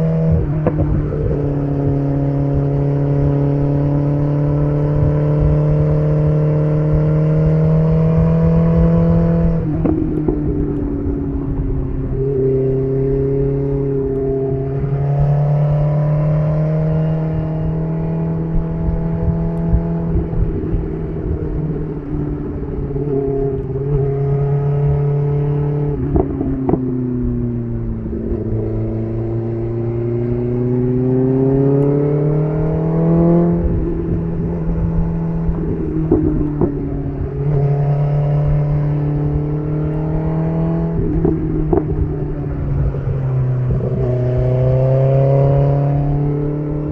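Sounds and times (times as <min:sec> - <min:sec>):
sport bike engine accelerating: 0:22.8 - 0:46.9.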